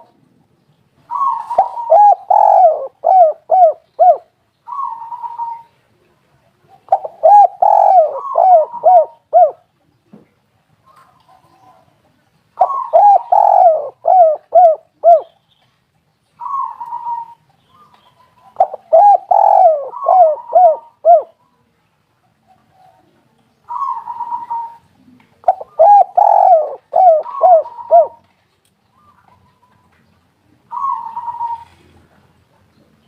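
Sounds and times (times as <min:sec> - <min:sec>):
dove cooing: 0:01.1 - 0:05.8, 0:06.6 - 0:09.7, 0:12.6 - 0:15.4, 0:16.4 - 0:21.4, 0:22.4 - 0:28.3, 0:30.6 - 0:32.2.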